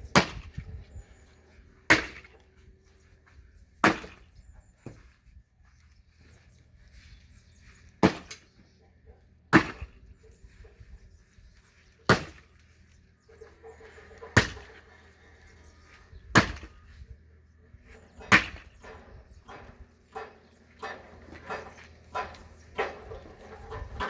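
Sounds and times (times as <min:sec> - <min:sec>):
axe splitting firewood: 0:01.9 - 0:02.4, 0:03.8 - 0:04.2, 0:09.5 - 0:09.9, 0:12.1 - 0:12.5, 0:14.2 - 0:14.9, 0:16.3 - 0:16.8, 0:18.2 - 0:18.8.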